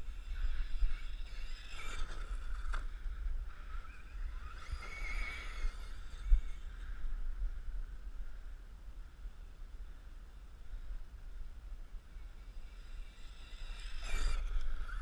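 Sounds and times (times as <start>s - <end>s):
electric motor whining: 0.0s - 7.1s, 12.6s - 15.0s
wind rumble on microphone: 0.0s - 15.0s.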